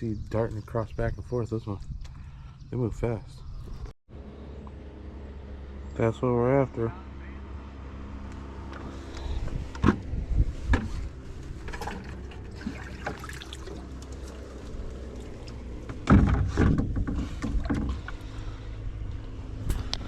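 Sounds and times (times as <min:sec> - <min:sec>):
steady low rumble: 0:00.0 - 0:20.0
knocks and thumps on boat hull: 0:15.9 - 0:18.1.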